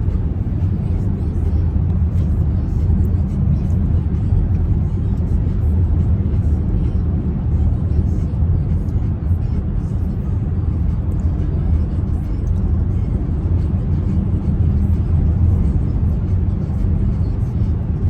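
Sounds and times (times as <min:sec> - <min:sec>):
car cabin rumble: 0:00.0 - 0:18.0
faint music playing: 0:00.0 - 0:18.0.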